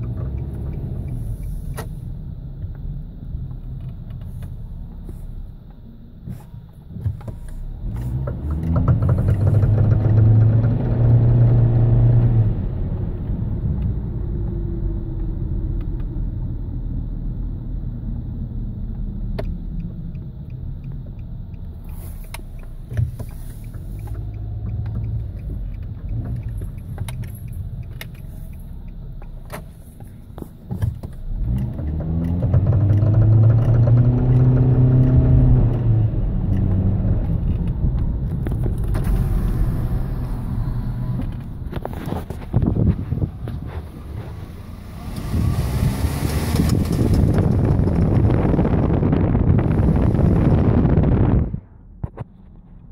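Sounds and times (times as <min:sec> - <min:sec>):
car engine running: 0:00.0 - 0:11.7, 0:12.3 - 0:52.9
sharp clicks: 0:18.9 - 0:43.6.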